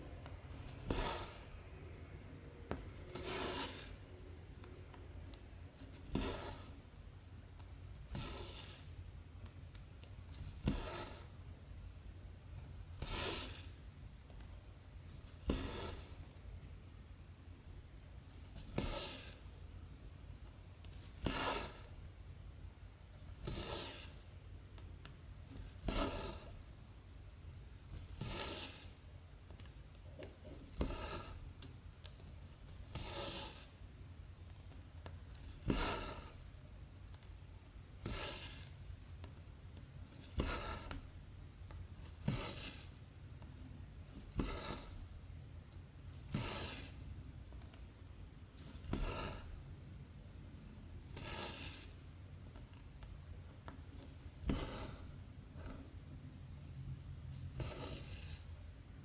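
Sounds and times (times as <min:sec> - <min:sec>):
thread rasping through fabric: 0:00.7 - 0:01.5, 0:27.9 - 0:29.0, 0:30.2 - 0:33.8, 0:35.3 - 0:36.5, 0:40.1 - 0:41.2, 0:42.0 - 0:43.0, 0:44.1 - 0:45.2, 0:46.2 - 0:47.0, 0:48.6 - 0:49.6, 0:53.6 - 0:55.9.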